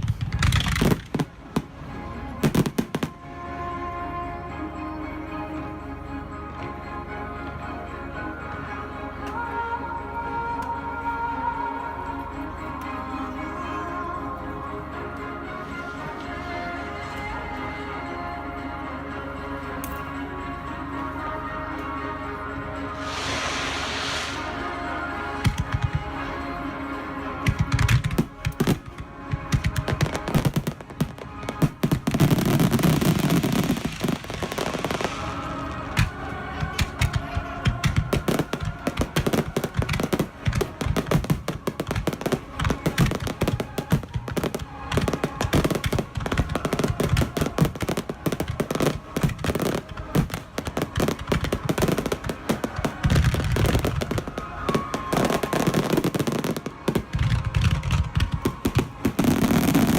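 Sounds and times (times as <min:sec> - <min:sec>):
fireworks bursting and crackling: 0:00.0 - 0:03.2, 0:23.0 - 0:26.5, 0:27.4 - 0:59.9
music playing: 0:00.0 - 0:59.9.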